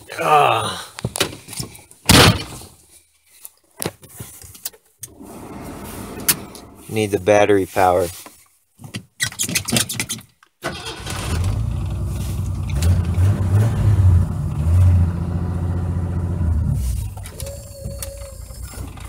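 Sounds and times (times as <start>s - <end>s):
engine cranking and starting: 5.1s - 6.9s, 10.6s - 15.0s, 18.2s - 19.0s
engine revving: 10.9s - 17.0s.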